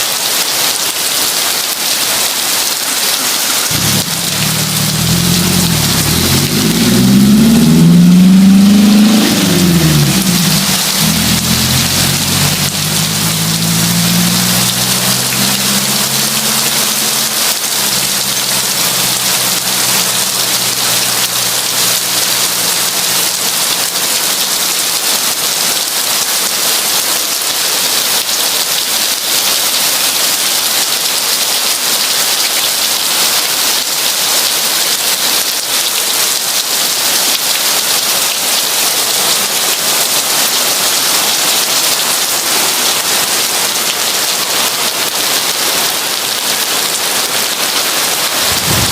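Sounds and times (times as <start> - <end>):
heavy rain falling: 0.0 - 48.9
low hum: 3.7 - 19.7, 48.4 - 48.9.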